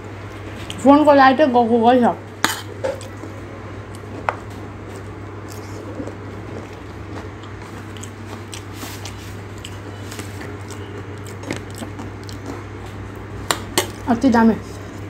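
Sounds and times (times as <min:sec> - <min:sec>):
crunchy chewing: 0:02.4 - 0:14.1.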